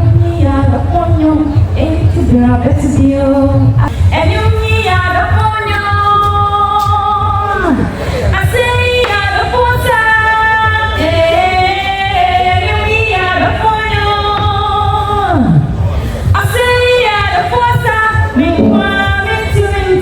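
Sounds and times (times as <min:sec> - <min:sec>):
person singing live: 0:18.3 - 0:20.0
band accompaniment: 0:18.4 - 0:20.0
pulsing bass: 0:18.4 - 0:20.0.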